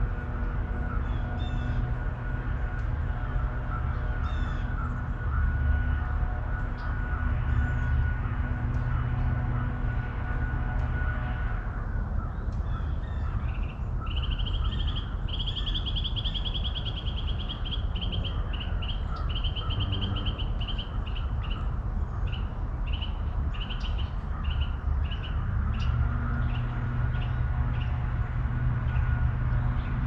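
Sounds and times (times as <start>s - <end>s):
low outdoor rumble: 0.0s - 30.0s
songbird trilling: 12.7s - 21.7s.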